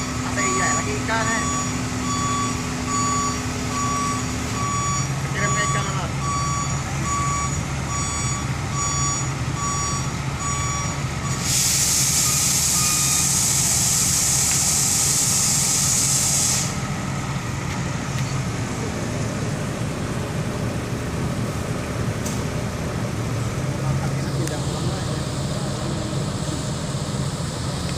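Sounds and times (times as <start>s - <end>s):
reversing alarm beeping: 0.0s - 16.5s
heavy diesel machinery running: 0.0s - 27.9s
air hiss: 11.3s - 16.9s.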